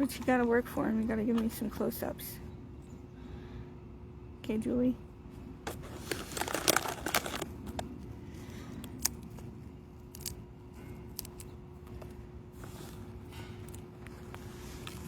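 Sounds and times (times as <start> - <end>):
plastic chip bag crinkling: 5.7 - 8.1, 10.0 - 10.4, 11.1 - 11.5.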